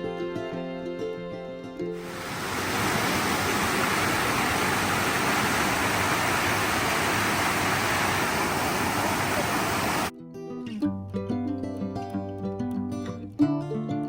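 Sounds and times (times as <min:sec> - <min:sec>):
waterfall rushing: 0:02.0 - 0:10.1.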